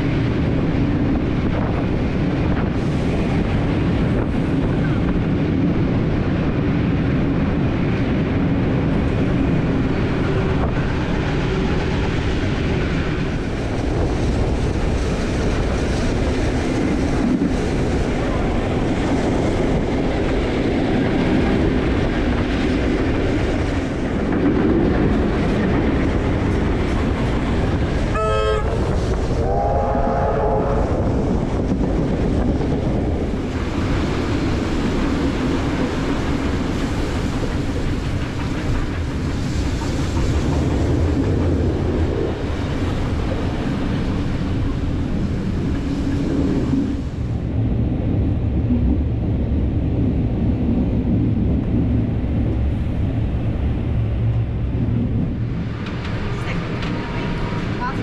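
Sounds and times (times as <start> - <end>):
electric train passing alongside: 0.0 - 58.0
train rumble and wheel clatter: 0.0 - 58.0
train horn blasts: 28.1 - 31.0.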